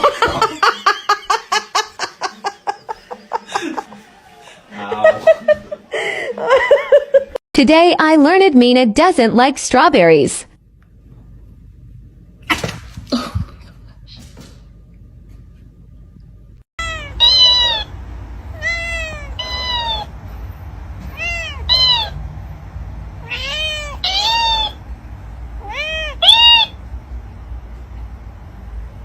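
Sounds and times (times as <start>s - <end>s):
cat meowing: 16.8s - 20.1s, 21.1s - 22.2s, 23.2s - 24.8s, 25.6s - 26.8s.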